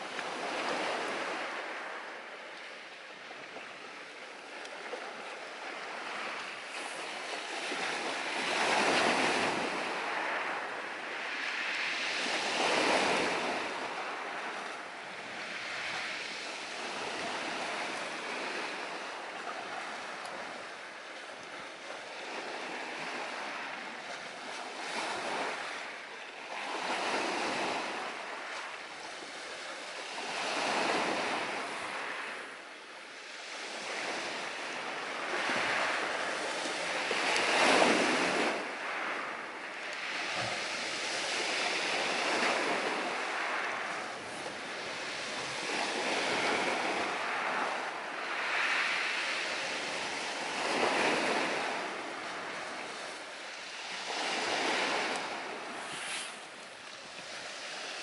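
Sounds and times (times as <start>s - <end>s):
ocean surf washing onto shore: 0.0s - 58.0s.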